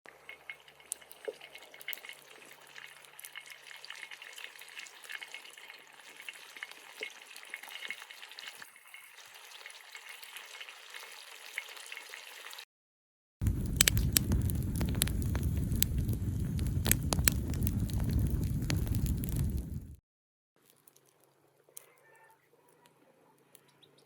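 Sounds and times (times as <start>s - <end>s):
food sizzling in hot oil: 0.1s - 12.7s, 13.4s - 20.0s.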